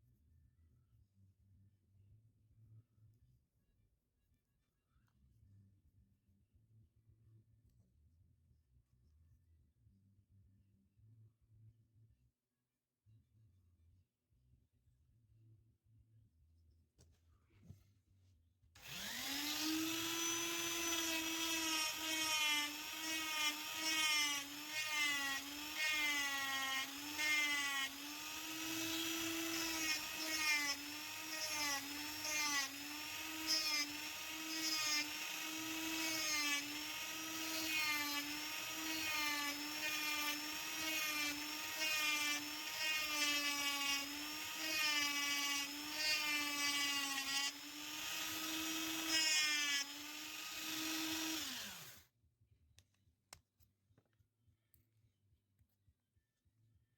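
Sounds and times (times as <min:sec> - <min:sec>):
rotary tool whining on wood: 0:18.8 - 0:52.1.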